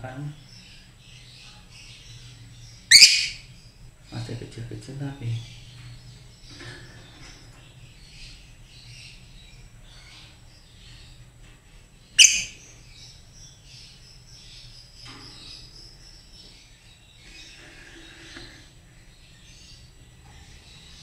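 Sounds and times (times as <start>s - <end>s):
lovebirds chirping: 0.0s - 21.0s
bird shrieking: 2.9s - 3.5s, 12.2s - 12.6s.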